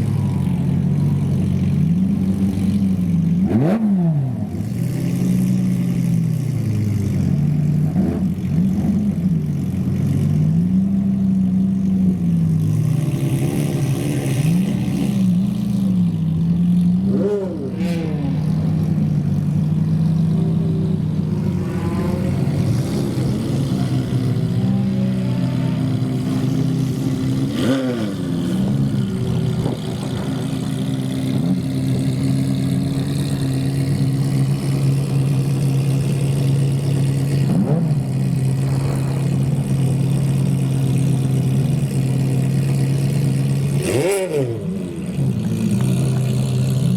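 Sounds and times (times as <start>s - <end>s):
car engine revving and accelerating: 3.4s - 6.2s, 12.6s - 15.6s, 17.0s - 46.9s.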